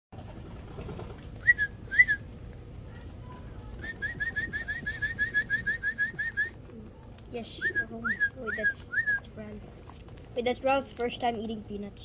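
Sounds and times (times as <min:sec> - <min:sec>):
bird whistled chirps: 0:01.4 - 0:02.4, 0:03.7 - 0:06.6, 0:07.5 - 0:09.3.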